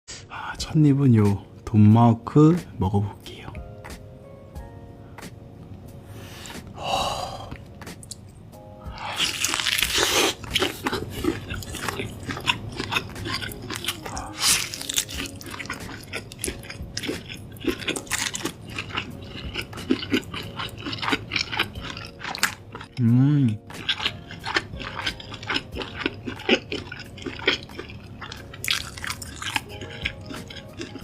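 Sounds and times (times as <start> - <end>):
chewing with small crunches: 9.0 - 31.0
crunching bite: 9.0 - 31.0.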